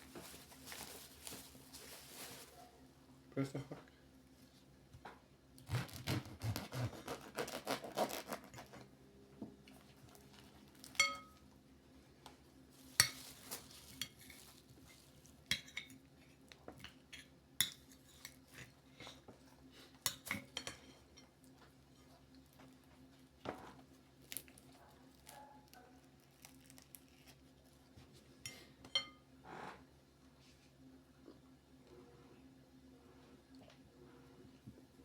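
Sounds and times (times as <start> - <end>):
cutlery clinking on plates: 11.0 - 11.4.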